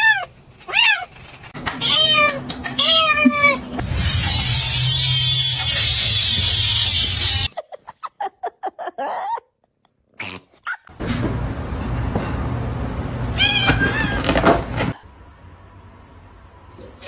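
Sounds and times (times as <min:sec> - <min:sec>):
cats meowing: 0:00.0 - 0:03.8, 0:13.4 - 0:14.4.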